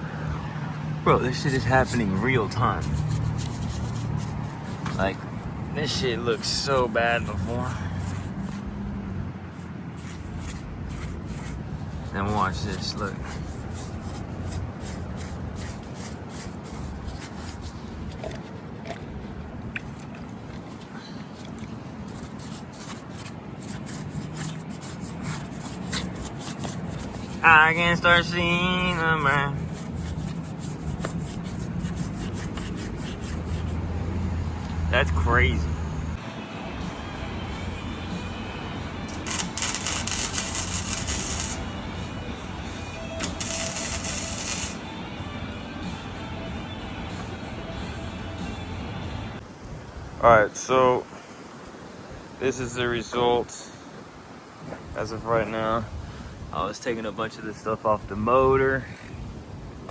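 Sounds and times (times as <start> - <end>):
scrubbing strokes on an engine: 1.1 - 34.6.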